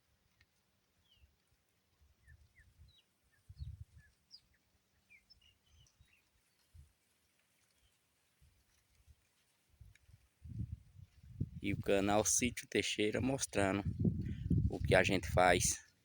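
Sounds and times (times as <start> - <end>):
small birds chirping: 2.2 - 6.8
low rumbles on microphone: 10.4 - 15.8.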